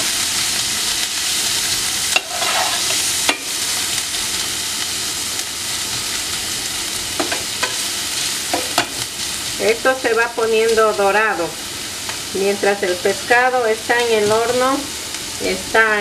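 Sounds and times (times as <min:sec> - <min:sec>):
onion sizzling in oil: 0:00.0 - 0:16.0
metal spoon scraping pan: 0:02.1 - 0:03.1.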